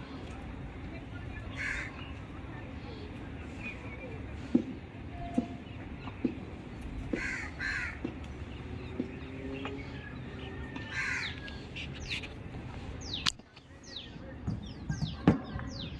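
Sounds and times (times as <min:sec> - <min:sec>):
small birds high calls: 0:01.0 - 0:15.9
crows cawing: 0:01.5 - 0:02.0, 0:07.1 - 0:08.1, 0:10.8 - 0:11.4.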